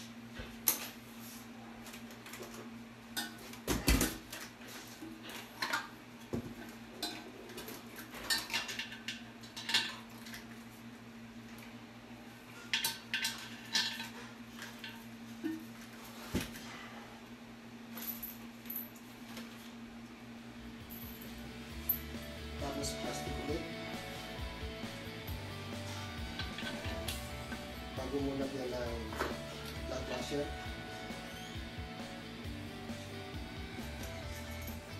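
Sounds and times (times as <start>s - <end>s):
steady low hum: 10.2s - 34.9s.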